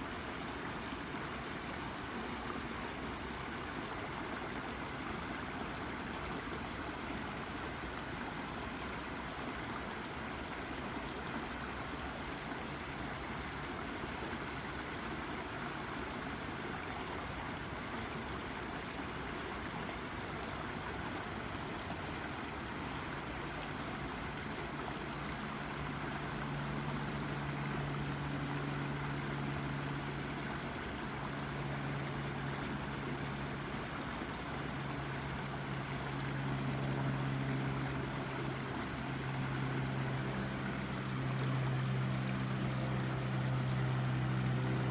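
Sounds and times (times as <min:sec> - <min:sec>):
brook water babbling: 0:00.0 - 0:44.9
low steady drone: 0:22.5 - 0:44.9.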